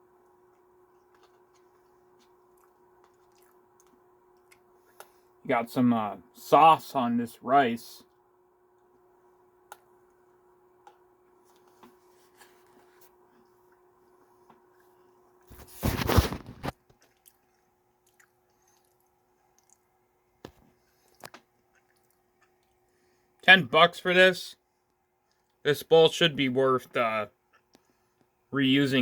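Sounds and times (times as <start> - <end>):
person chewing: 0.2 - 5.3, 16.6 - 22.9.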